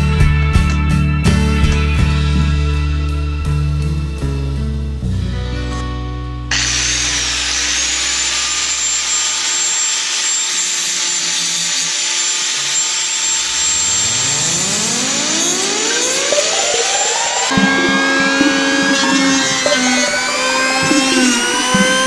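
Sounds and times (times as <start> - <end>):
background music: 0.0 - 6.7, 15.8 - 22.0
power tool running high-pitched: 6.5 - 22.0
rising whine: 12.7 - 22.0.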